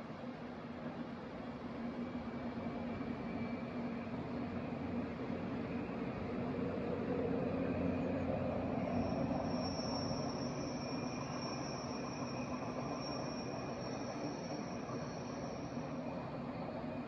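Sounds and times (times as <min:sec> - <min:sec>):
distant train rumbling on rails: 0:00.0 - 0:17.0
thin high whine: 0:07.9 - 0:17.0.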